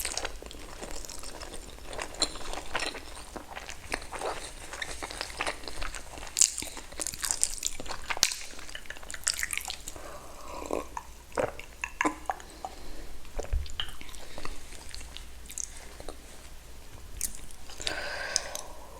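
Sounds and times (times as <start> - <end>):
person chewing wet mouth sounds: 0.0 - 16.6, 17.2 - 18.9.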